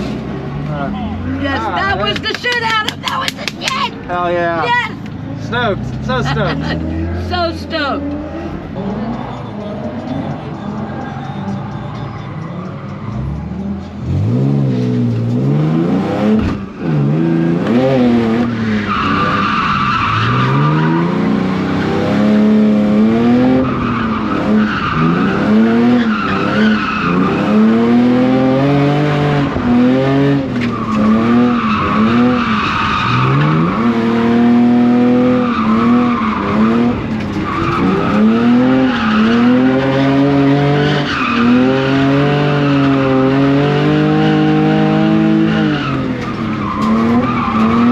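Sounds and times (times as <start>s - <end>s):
car engine revving: 0.0s - 47.9s
tyre squeal: 8.4s - 13.7s, 45.6s - 47.9s.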